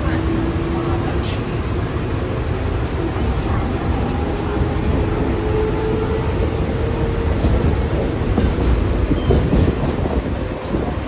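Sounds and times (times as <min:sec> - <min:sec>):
train wheels rumbling and rattling: 0:00.0 - 0:11.0
clanks and rattles: 0:07.3 - 0:11.0.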